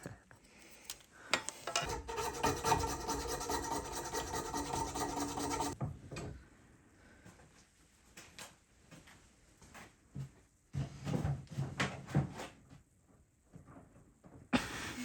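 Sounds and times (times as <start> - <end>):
tool rasping against material: 1.7 - 5.8.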